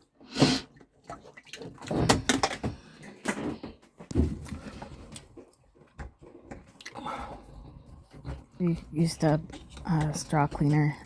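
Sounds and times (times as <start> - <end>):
objects knocking and clattering: 1.7 - 6.8.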